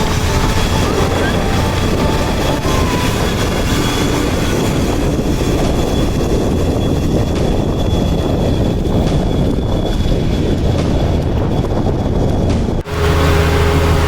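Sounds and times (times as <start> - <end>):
faint high-pitched tone: 0.0 - 5.1
truck engine and road rumble: 0.0 - 14.0.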